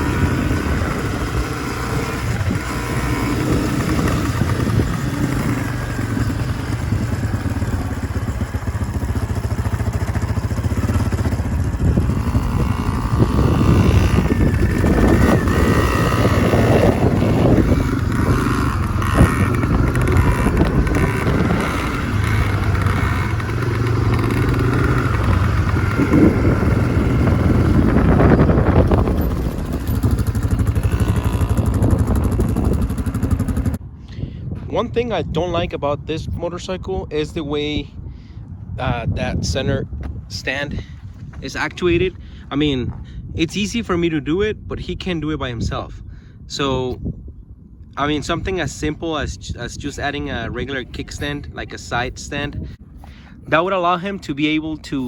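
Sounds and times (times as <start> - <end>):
small two-stroke dirt bike engine: 0.0 - 33.8.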